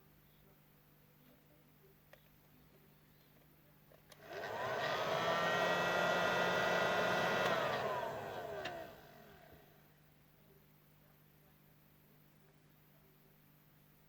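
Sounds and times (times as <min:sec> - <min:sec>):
soldering gun blower whine: 0:04.1 - 0:09.7.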